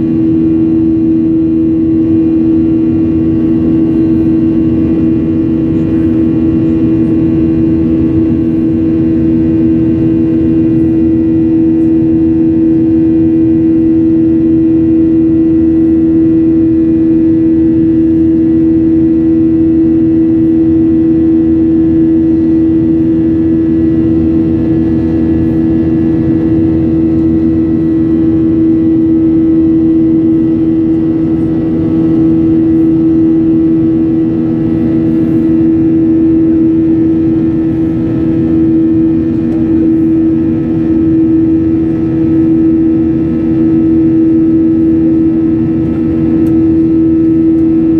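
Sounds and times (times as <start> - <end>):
jet airliner engines droning: 0.0 - 47.9.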